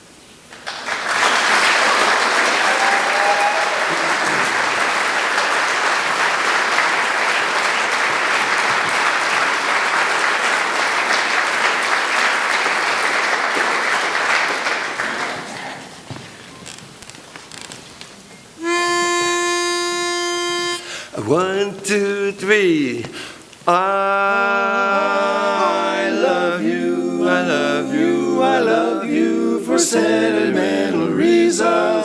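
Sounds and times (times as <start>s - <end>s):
large audience applauding: 0.5s - 16.1s.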